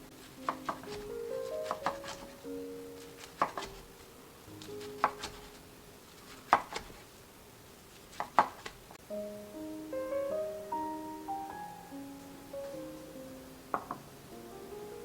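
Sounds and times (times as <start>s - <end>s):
soft background music: 0.0s - 6.0s, 9.0s - 15.0s
knife chopping on cutting board: 0.4s - 2.4s, 3.2s - 3.9s, 4.8s - 5.6s, 6.3s - 7.0s, 8.1s - 8.8s.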